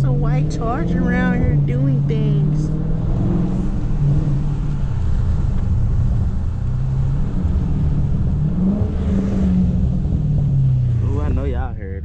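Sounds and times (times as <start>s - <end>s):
car engine cruising drone: 0.0s - 12.0s
tyre noise on wet road: 2.7s - 11.5s.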